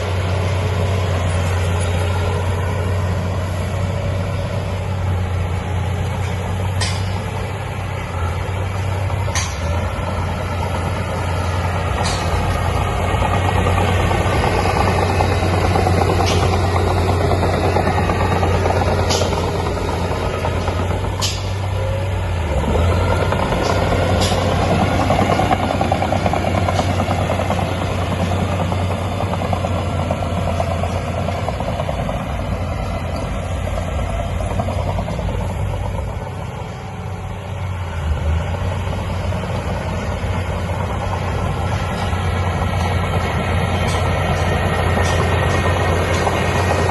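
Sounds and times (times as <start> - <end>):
heavy diesel engine humming: 0.0 - 46.9
metallic clanks: 6.2 - 7.4, 9.3 - 9.8, 11.9 - 12.6, 20.6 - 21.7, 23.6 - 24.8, 43.7 - 46.9.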